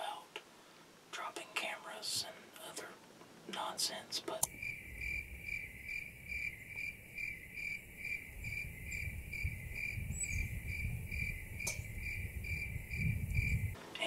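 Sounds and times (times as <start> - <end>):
high-pitched chirping: 4.5 - 13.7
low wind rumble: 4.5 - 14.0.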